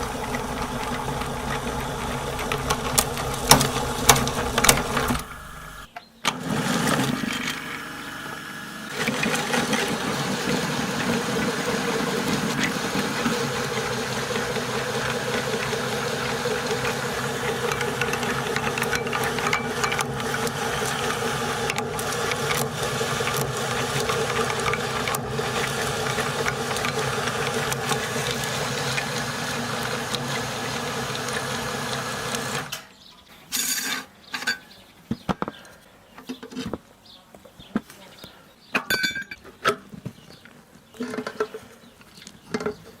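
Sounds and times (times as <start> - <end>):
electric meat grinder running: 0.0 - 32.7.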